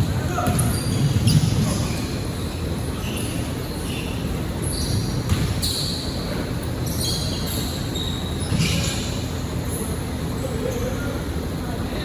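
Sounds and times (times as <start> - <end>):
gym hall din: 0.0 - 6.6
sneaker squeaks: 0.0 - 11.1.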